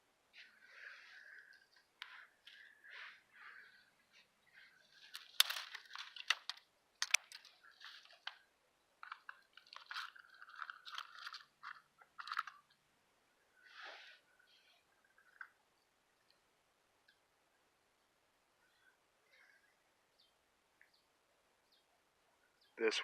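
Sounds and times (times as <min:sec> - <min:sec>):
dry leaves and twigs crunching: 0:04.9 - 0:08.4
twigs snapping: 0:05.0 - 0:08.4.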